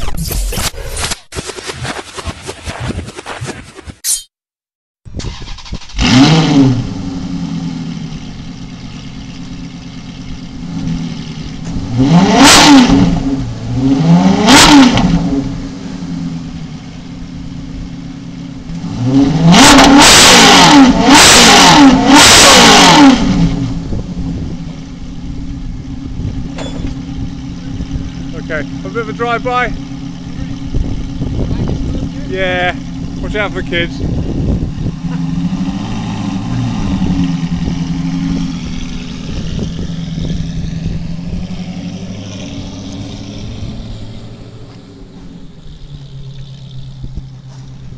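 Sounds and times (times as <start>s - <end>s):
car engine revving: 5.3s - 47.9s
car engine idling: 6.8s - 12.0s, 15.3s - 18.8s, 23.6s - 47.9s.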